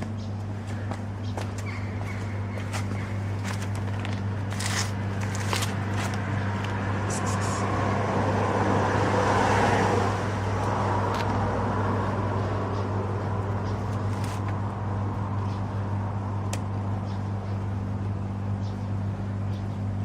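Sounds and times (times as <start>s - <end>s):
steady low hum: 0.0s - 20.0s
vehicle passing by: 5.7s - 13.9s.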